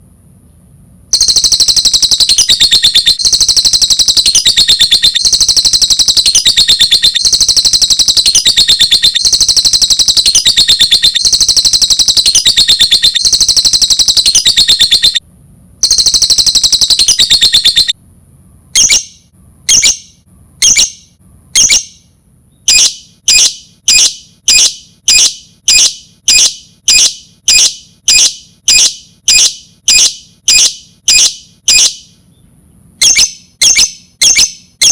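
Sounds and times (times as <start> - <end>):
lovebird chirping trills: 1.2 - 15.2, 18.8 - 22.0, 22.6 - 32.0.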